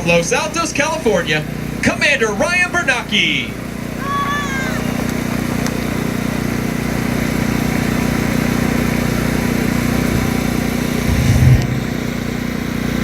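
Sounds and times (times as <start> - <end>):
engine idling hum: 0.0 - 13.0
low rumble: 10.0 - 12.7.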